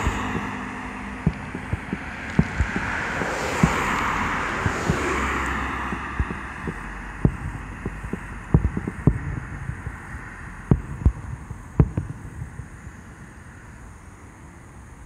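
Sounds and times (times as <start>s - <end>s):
distant firework booms: 0.0s - 9.9s, 10.6s - 12.7s
hissing wash: 0.0s - 13.8s.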